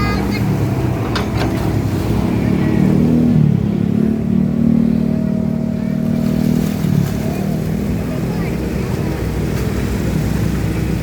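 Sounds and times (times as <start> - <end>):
excavator diesel engine under load: 0.0 - 11.0.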